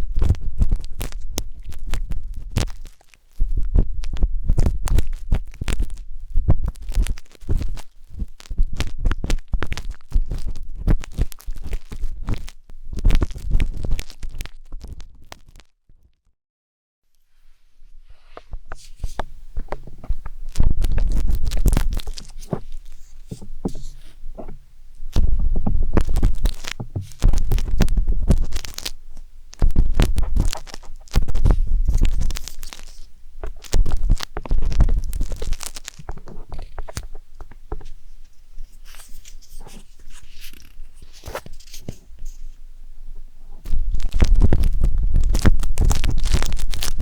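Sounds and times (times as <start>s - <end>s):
wooden skewer scratching microphone: 18.1s - 29.0s, 29.6s - 42.6s.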